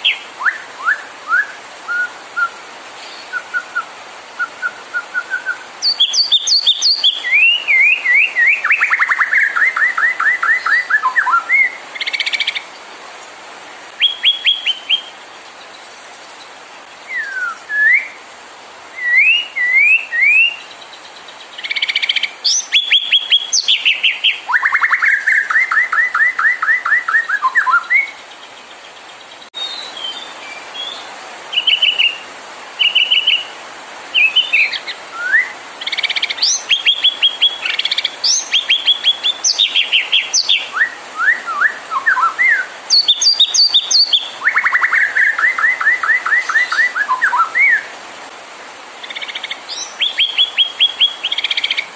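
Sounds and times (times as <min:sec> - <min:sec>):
bird singing whistled phrases: 0:00.0 - 0:12.6, 0:14.0 - 0:15.1, 0:17.1 - 0:18.2, 0:19.0 - 0:20.7, 0:21.6 - 0:28.2, 0:32.8 - 0:33.5, 0:34.2 - 0:47.9, 0:49.1 - 0:51.9.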